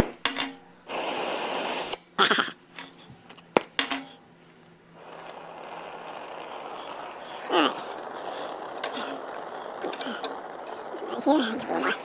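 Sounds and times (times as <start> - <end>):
metallic clinks of steel parts: 2.8 - 4.2
faint rushing noise: 4.4 - 12.0.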